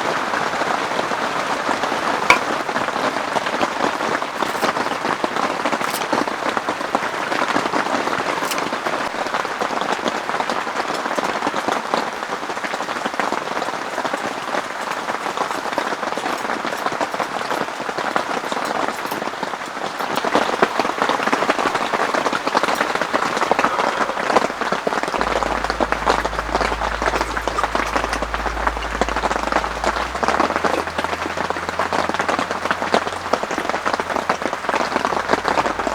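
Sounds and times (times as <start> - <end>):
heavy rain on tent: 0.0 - 35.9
low steady hum: 20.1 - 35.9.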